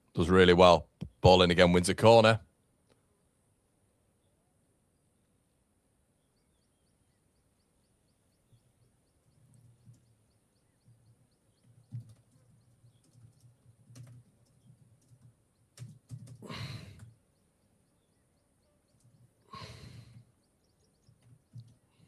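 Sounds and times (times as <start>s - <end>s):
faint scattered clicks: 8.8s - 22.0s
breathy sighs close to microphone: 16.4s - 17.1s, 19.5s - 20.3s.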